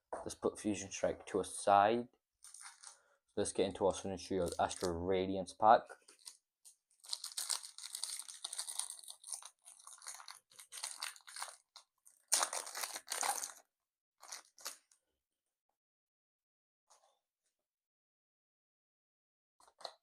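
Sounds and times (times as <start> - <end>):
foil wrapper tearing and crinkling: 2.4 - 3.0, 4.4 - 4.9, 7.0 - 13.6, 14.2 - 14.8.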